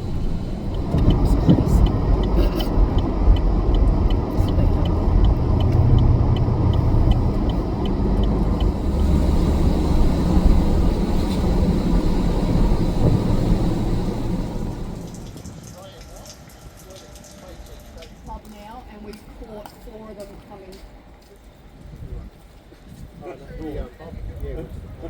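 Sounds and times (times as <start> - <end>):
car engines running loudly: 0.0 - 15.5
regular high tick: 0.0 - 15.5.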